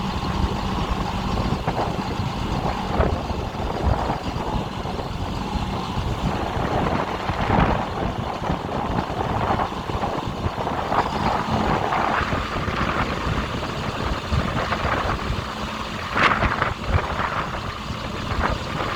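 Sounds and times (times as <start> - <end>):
diesel truck engine running: 0.0 - 18.9.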